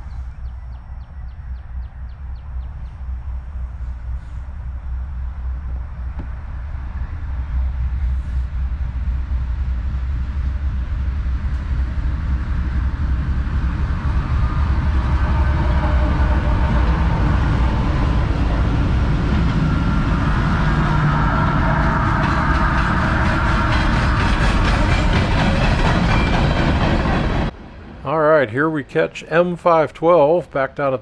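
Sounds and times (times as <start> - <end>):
freight train rumble: 0.0 - 31.0
wheels clacking over rail joints: 15.6 - 27.5.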